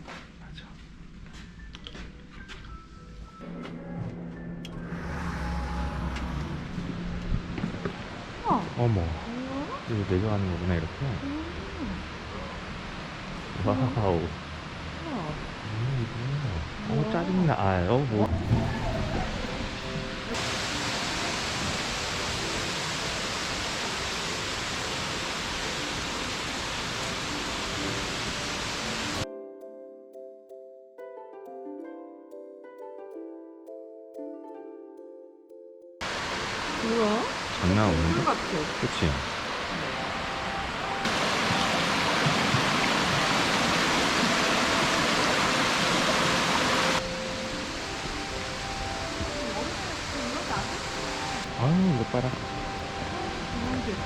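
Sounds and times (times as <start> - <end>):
water rushing: 4.7 - 29.2, 36.0 - 54.0.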